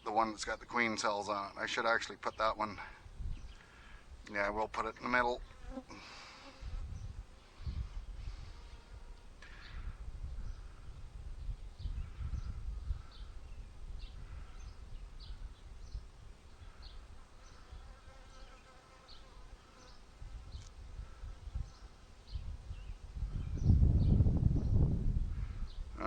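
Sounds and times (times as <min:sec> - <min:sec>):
wind rumbling on microphone: 0:02.9 - 0:04.3, 0:06.6 - 0:18.0, 0:20.1 - 0:26.0.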